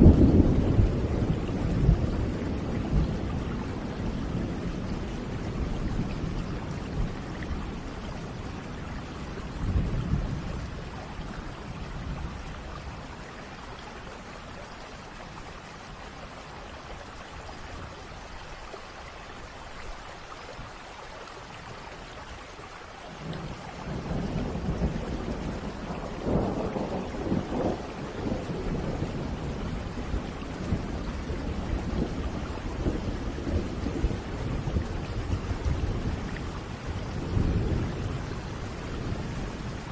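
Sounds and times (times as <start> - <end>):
rolling thunder: 0.0 - 13.1, 23.2 - 39.9
steady rain: 0.0 - 39.9.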